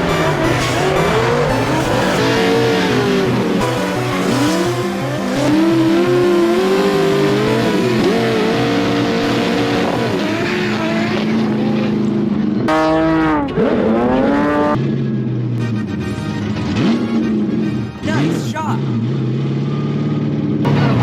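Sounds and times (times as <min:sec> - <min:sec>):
tyres squealing: 0:00.0 - 0:06.6
car engine revving: 0:00.0 - 0:21.0.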